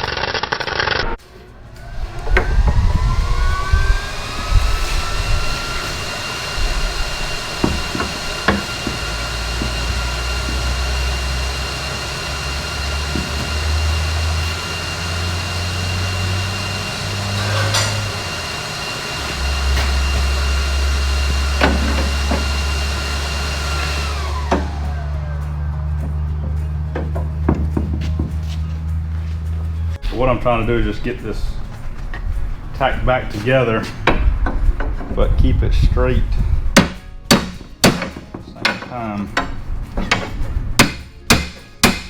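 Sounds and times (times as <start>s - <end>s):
shop tool motor whine: 0.0s - 30.0s
low hum: 0.0s - 37.5s
sharp metal knocks: 36.8s - 42.0s.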